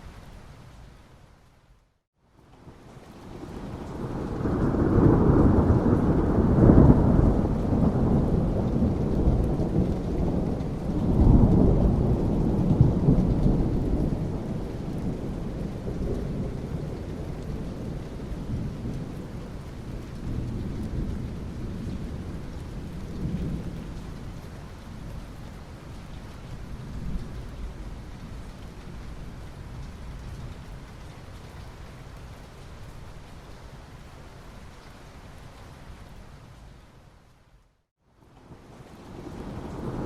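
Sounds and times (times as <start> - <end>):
thunder rumbling: 3.2 - 24.9, 39.1 - 40.0.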